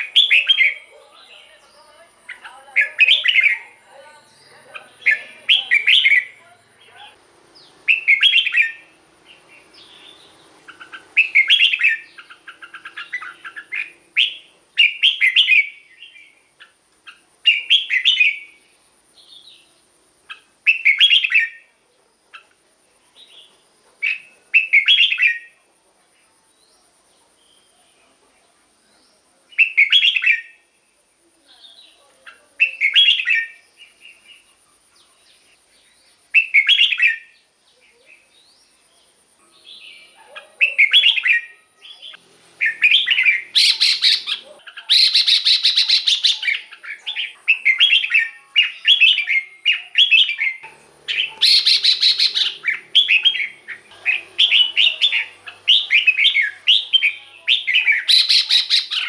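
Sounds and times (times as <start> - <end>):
bird singing short phrases: 0.0 - 21.7, 28.9 - 30.7, 31.5 - 34.5, 35.1 - 59.0.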